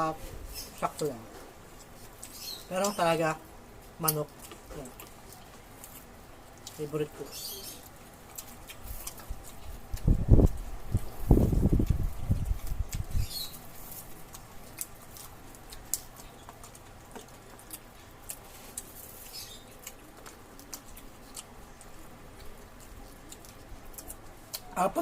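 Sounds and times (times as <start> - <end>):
chewing and mouth sounds: 3.8 - 25.0.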